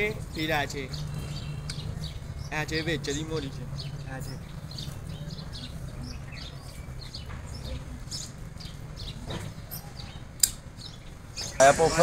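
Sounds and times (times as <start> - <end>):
small birds chirping: 0.0 - 12.0
sharp click: 10.4 - 10.6.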